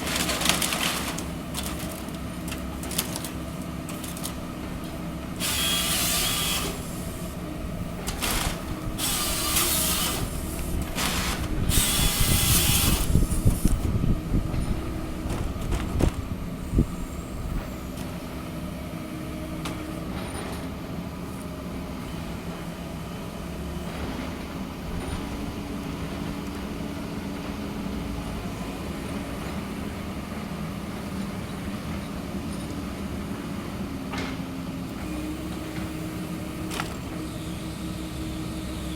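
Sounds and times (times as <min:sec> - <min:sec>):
diesel engine running: 0:00.0 - 0:31.4
hydraulic rushing bursts: 0:05.2 - 0:13.9.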